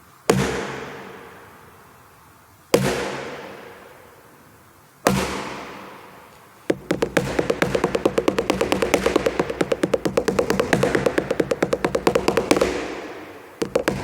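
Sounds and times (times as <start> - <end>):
echoing impacts on watermelon: 6.7 - 14.0.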